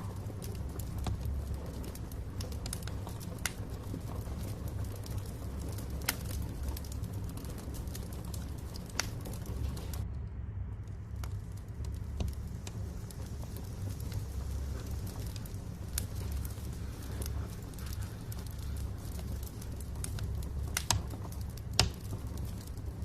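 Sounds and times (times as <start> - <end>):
fire flames rumbling: 0.0 - 23.0
logs crackling and popping: 0.0 - 23.0.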